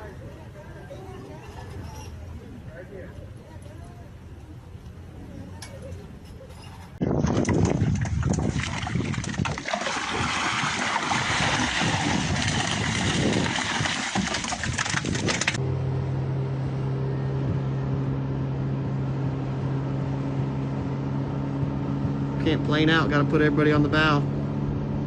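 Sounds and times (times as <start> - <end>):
boat engine droning: 15.6 - 25.0.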